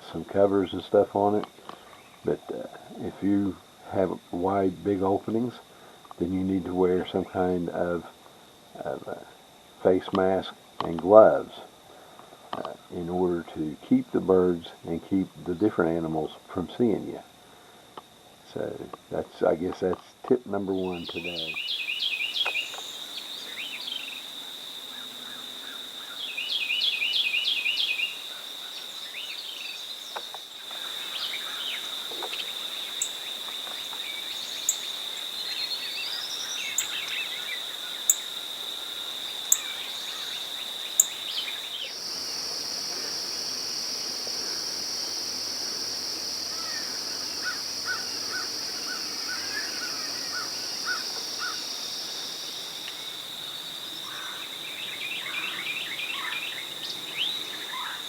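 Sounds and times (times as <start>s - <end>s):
songbird song: 0.0s - 58.0s
high-pitched insect drone: 20.5s - 58.0s.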